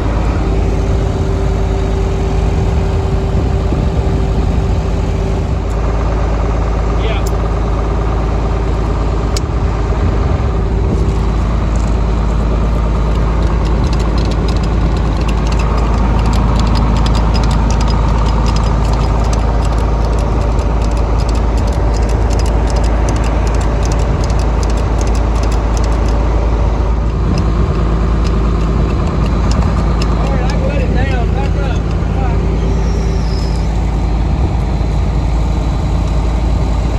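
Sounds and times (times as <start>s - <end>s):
engine idling: 0.0s - 36.9s
rapid light metallic clicks: 11.7s - 32.4s.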